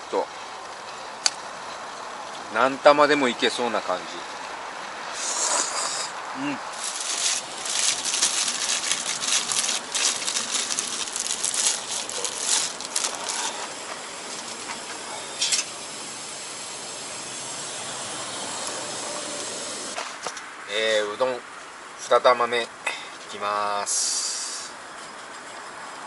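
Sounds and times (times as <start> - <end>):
steady hiss: 5.0 - 20.2, 23.6 - 24.9
person slurping noodles: 5.2 - 7.0.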